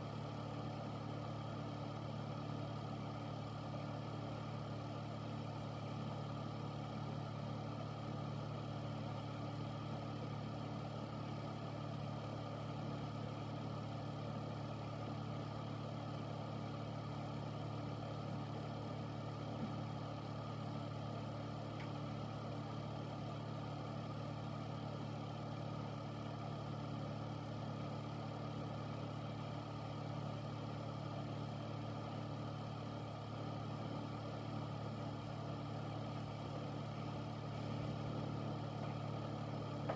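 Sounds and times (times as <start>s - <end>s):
air filter fan humming: 35.2s - 39.9s.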